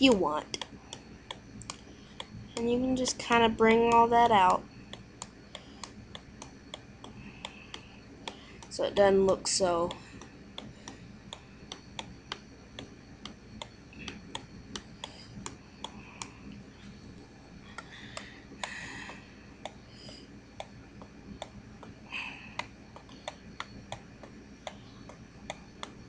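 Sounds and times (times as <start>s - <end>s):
faint regular ticking: 0.0s - 26.0s.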